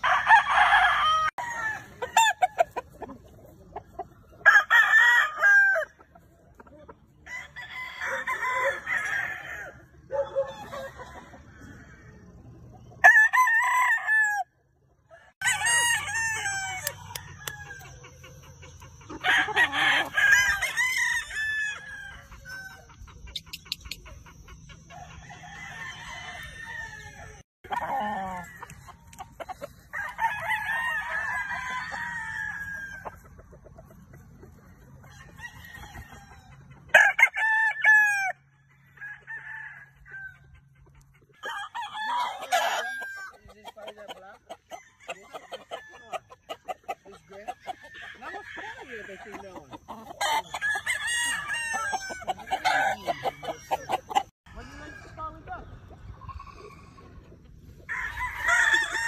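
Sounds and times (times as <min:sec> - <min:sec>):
roosters crowing: 0:00.0 - 0:06.3, 0:07.0 - 0:59.0
rooster clucking calls: 0:38.9 - 0:54.6.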